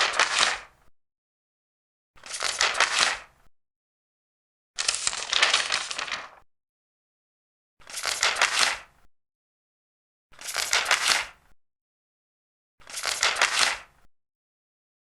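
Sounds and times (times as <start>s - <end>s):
paper pages turning: 0.0s - 0.7s, 2.2s - 3.3s, 4.8s - 6.4s, 7.8s - 8.9s, 10.4s - 11.4s, 12.8s - 13.9s.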